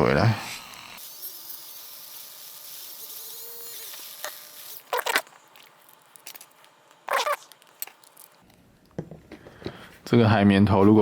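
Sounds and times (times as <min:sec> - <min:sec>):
scratchy rubbing: 0:07.1 - 0:07.6.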